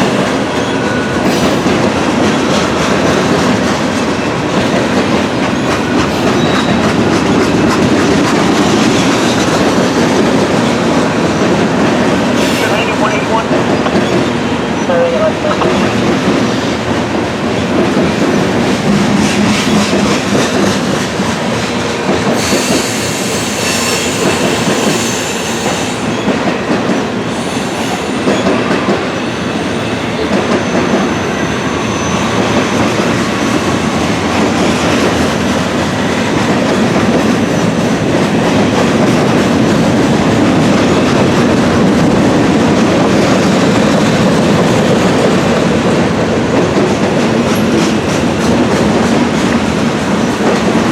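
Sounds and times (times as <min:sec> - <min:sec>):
train wheels clattering: 0:00.0 - 0:14.4, 0:15.6 - 0:29.2, 0:29.8 - 0:50.9
high wheel squeal: 0:06.3 - 0:06.8, 0:22.4 - 0:26.2, 0:29.2 - 0:33.7.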